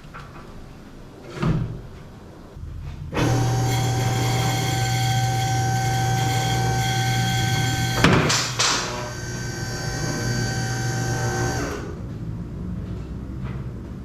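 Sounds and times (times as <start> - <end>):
machine humming with whine: 3.1 - 12.1.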